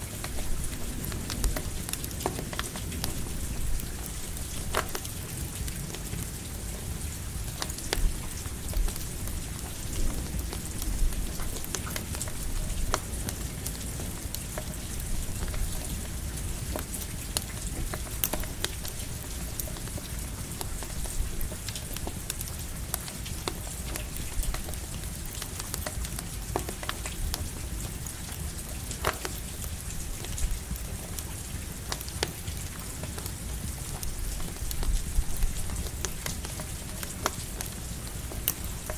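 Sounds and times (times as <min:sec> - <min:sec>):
campfire crackling: 0:00.0 - 0:38.9
steady rain falling: 0:00.0 - 0:38.9.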